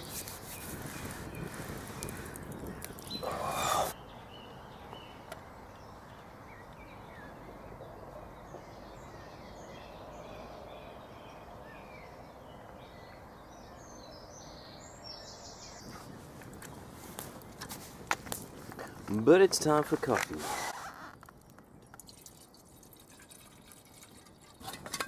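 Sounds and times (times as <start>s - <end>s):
small birds chirping: 0.0s - 22.5s.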